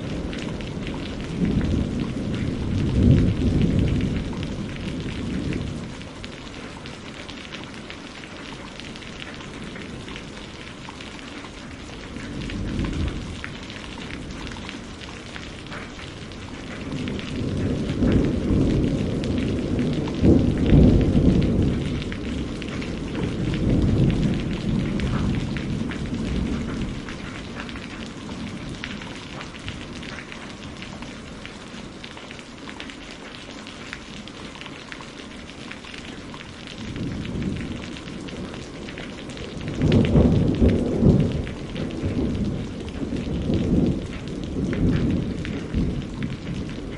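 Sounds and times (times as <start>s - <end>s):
thunder rumbling: 0.0s - 32.2s, 36.0s - 46.9s
rain on a greenhouse roof: 0.0s - 46.9s.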